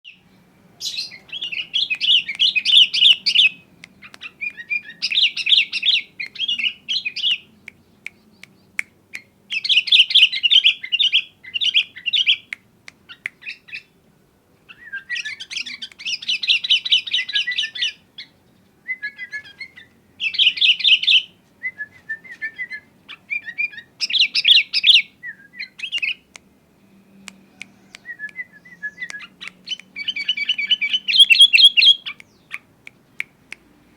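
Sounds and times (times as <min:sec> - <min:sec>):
bird chattering song: 0:00.8 - 0:13.9, 0:22.7 - 0:26.3, 0:27.8 - 0:33.4.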